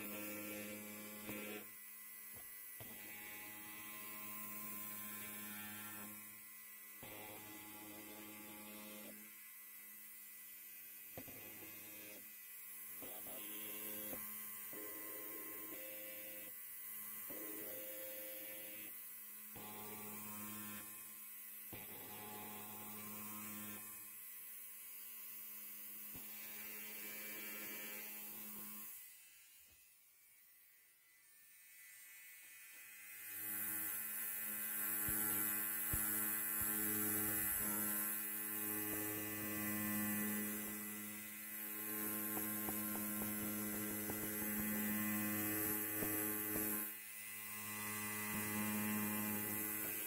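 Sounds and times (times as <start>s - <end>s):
electric hair clipper buzzing: 0.0s - 50.0s.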